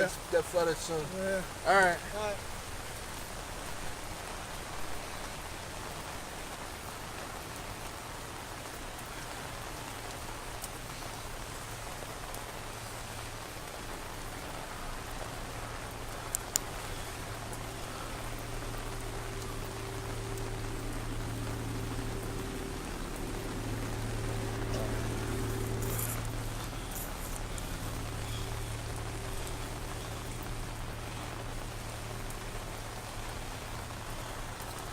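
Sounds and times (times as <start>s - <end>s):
low steady hum: 0.0s - 34.9s
rain falling: 0.0s - 34.9s.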